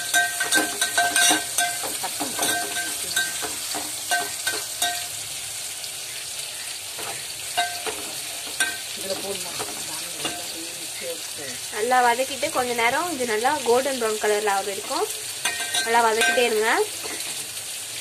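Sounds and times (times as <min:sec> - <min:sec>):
metal spatula scraping a pot: 0:00.0 - 0:05.1, 0:14.7 - 0:17.5
onions sizzling in hot oil: 0:00.0 - 0:18.0.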